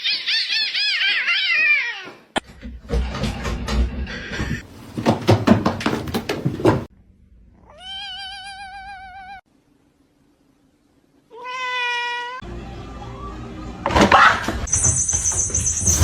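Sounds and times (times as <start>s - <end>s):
rustling and knocking: 2.5s - 6.9s
cat meowing: 7.6s - 9.4s, 11.3s - 12.4s.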